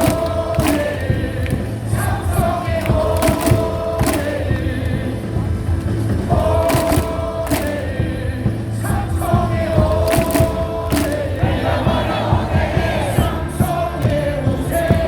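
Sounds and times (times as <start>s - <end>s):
sharp claps: 0.0s - 5.1s, 6.6s - 8.0s, 9.9s - 11.5s
crowd singing and chanting: 0.0s - 15.0s
loud amplified music: 0.0s - 15.0s.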